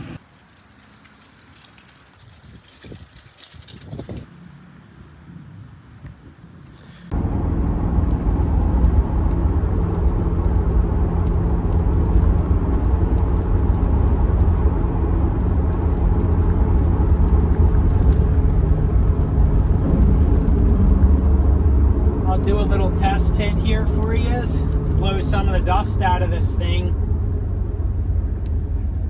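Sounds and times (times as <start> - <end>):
car engine droning: 7.1 - 29.0.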